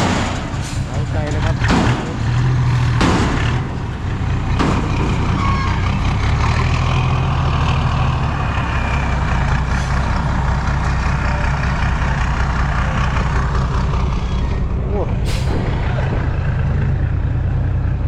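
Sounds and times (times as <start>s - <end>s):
diesel truck engine running: 0.0s - 18.0s.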